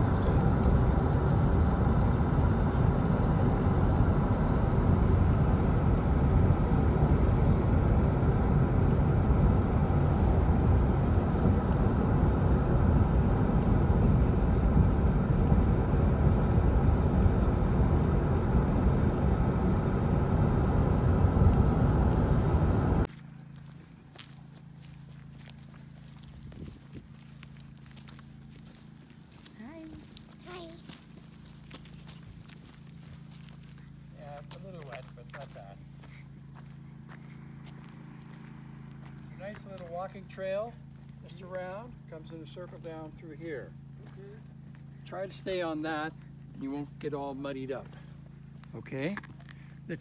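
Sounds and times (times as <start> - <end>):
road and engine noise inside car: 0.0 - 23.6
low hum: 0.0 - 49.9.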